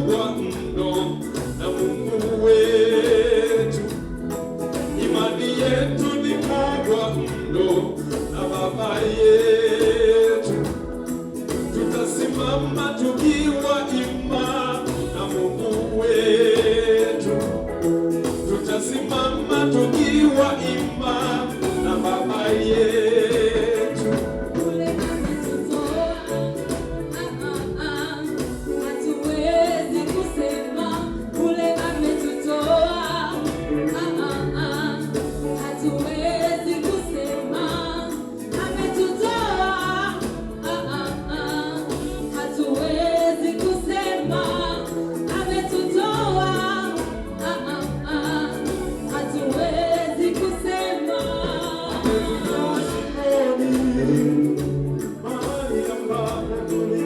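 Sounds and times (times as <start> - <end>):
choir singing gospel: 0.0 - 57.0.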